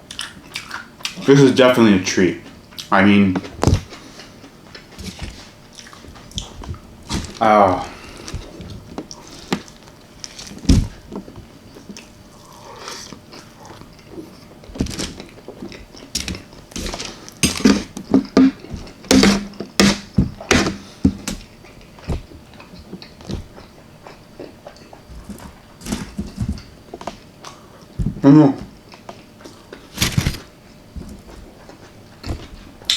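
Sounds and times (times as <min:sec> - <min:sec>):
person chewing food: 0:00.0 - 0:01.3, 0:02.6 - 0:32.9.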